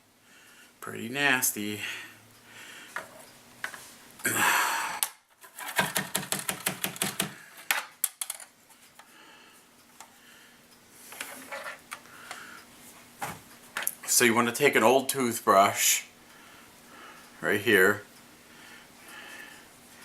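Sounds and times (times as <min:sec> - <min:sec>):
rapid small plastic clicks: 0:05.7 - 0:07.4.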